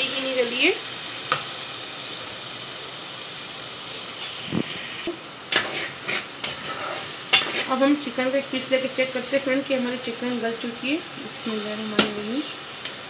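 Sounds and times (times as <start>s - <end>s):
curry sizzling in oil: 0.0s - 13.0s
metal spoon scraping a pot: 4.2s - 7.7s.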